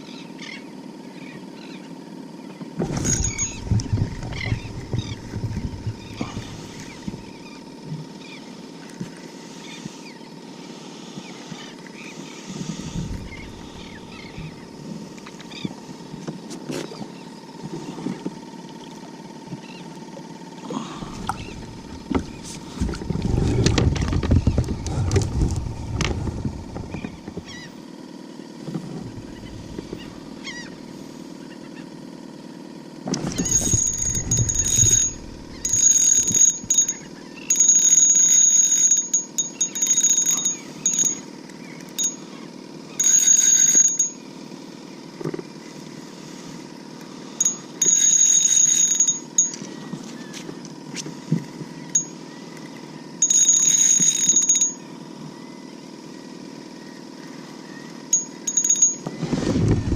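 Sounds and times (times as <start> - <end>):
low rumbling: 2.8 - 7.4, 12.6 - 15.2, 20.8 - 27.6, 29.0 - 30.4, 33.2 - 37.6
water knocking around kayak hull: 3.4 - 7.3.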